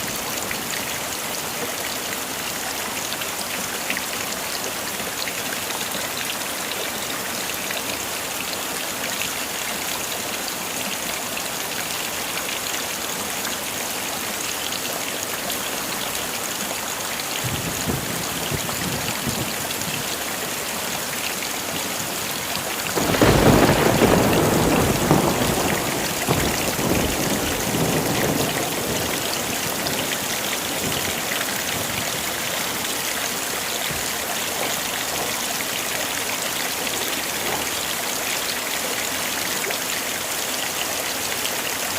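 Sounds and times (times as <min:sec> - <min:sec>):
heavy rain falling: 0:00.0 - 0:41.9
loud thunderclap: 0:17.4 - 0:19.6, 0:23.0 - 0:32.2
thunder rumbling: 0:17.4 - 0:20.1, 0:22.9 - 0:32.4.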